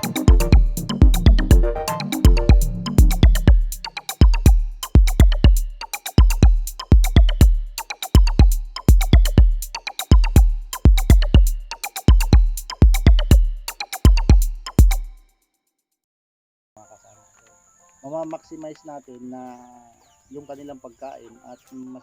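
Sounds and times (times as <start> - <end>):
drum machine beat: 0.0 - 15.2.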